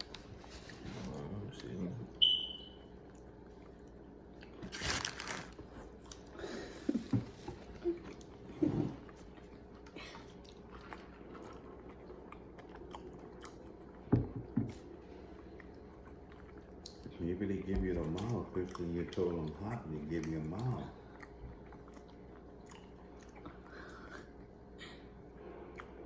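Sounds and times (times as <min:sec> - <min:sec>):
crunchy chewing: 0:09.0 - 0:14.1, 0:14.7 - 0:24.3.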